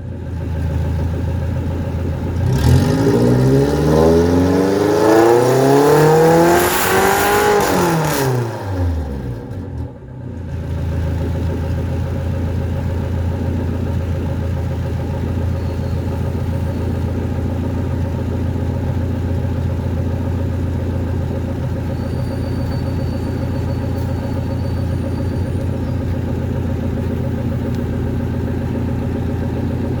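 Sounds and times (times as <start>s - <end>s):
car engine revving and idling: 0.0s - 30.0s.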